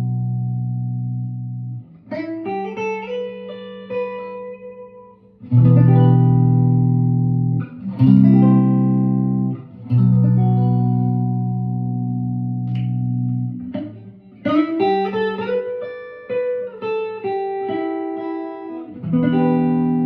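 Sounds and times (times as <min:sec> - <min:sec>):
electric guitar playing: 0:00.0 - 0:20.0.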